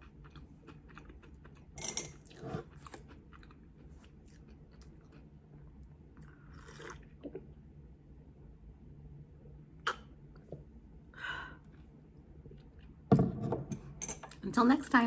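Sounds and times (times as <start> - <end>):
person chewing and swallowing: 0.0 - 7.6, 11.6 - 13.1
sip from a mug: 6.2 - 7.4.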